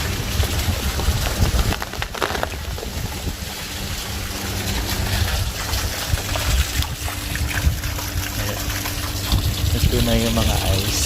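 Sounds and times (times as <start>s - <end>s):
heavy rain and hail falling: 0.0s - 5.7s
water running off: 0.0s - 11.0s
wind buffeting microphone: 0.0s - 11.0s.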